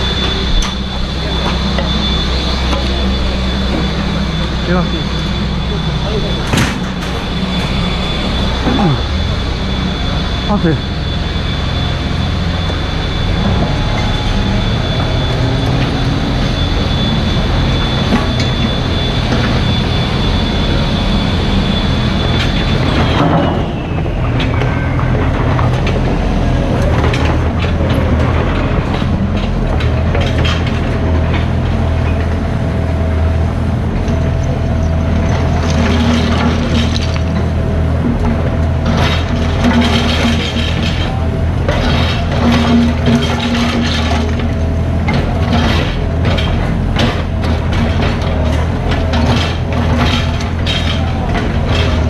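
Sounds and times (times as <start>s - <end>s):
excavator diesel engine running: 0.0s - 52.0s
high hydraulic whine: 0.0s - 52.0s
machine knocks and clinks: 6.4s - 8.8s.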